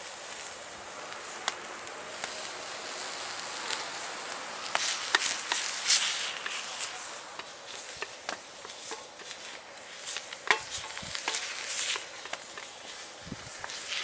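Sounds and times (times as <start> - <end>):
food sizzling in a frying pan: 0.0 - 14.0
utensil scraping a pan: 4.8 - 14.0.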